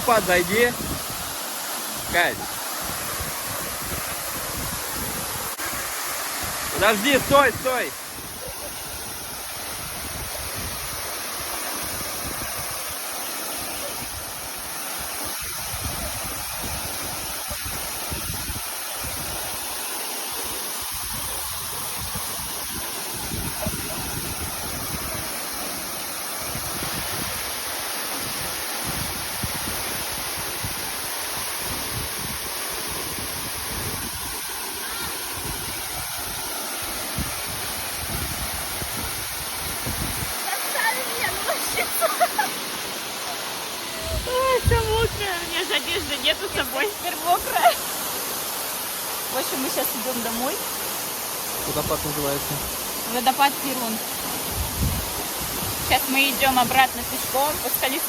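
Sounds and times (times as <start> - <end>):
waterfall rushing: 0.0 - 58.0
wind buffeting microphone: 0.7 - 1.4, 2.4 - 13.0, 13.8 - 19.6, 20.8 - 25.4, 37.1 - 42.8, 43.4 - 47.7, 54.2 - 57.8.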